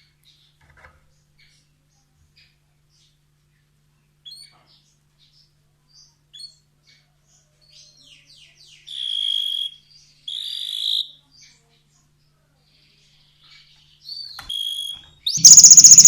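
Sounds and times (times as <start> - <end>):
canary singing: 15.3 - 16.0.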